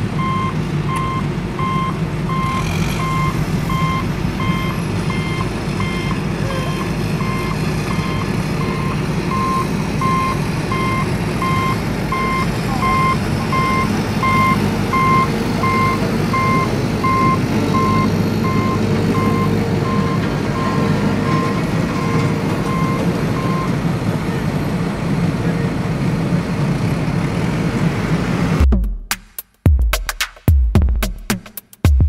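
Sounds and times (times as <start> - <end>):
truck engine rumble: 0.0 - 29.0
truck reversing alarm beeping: 0.2 - 24.6.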